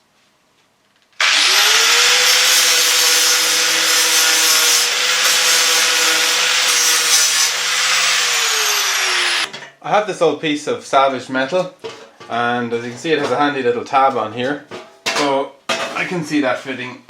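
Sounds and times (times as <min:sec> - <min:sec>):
angle grinder sanding metal: 0:01.2 - 0:09.5.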